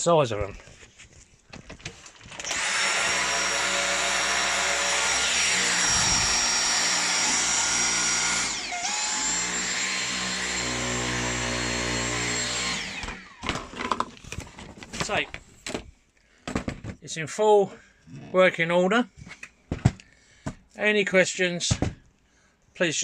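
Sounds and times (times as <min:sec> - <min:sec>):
vacuum cleaner motor whine: 0:05.4 - 0:13.6.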